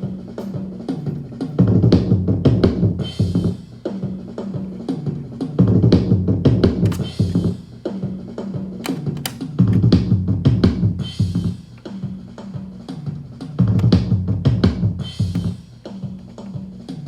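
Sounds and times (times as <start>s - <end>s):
drum kit groove: 0.0s - 17.0s.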